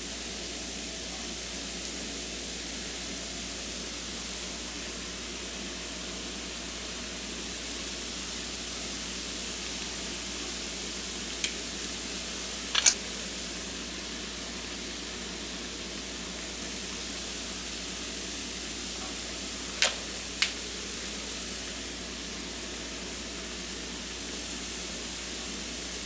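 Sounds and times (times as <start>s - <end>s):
food sizzling in a frying pan: 0.0s - 26.0s
clicks: 12.8s - 13.0s, 19.8s - 20.6s.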